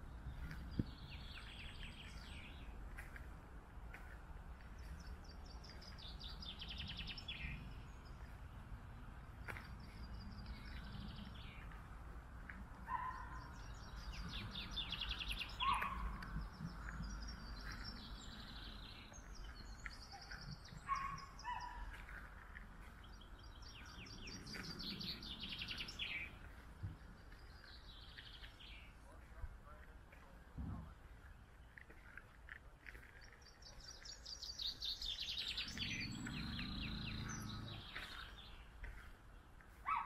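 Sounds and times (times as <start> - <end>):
songbirds trilling: 0.0 - 30.4, 31.0 - 40.0
short low bird calls: 34.9 - 38.6.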